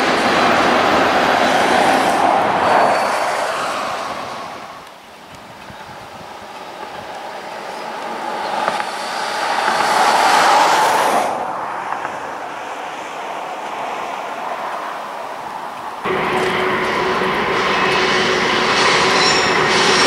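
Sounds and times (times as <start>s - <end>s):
distant freight train passing: 0.0s - 20.0s.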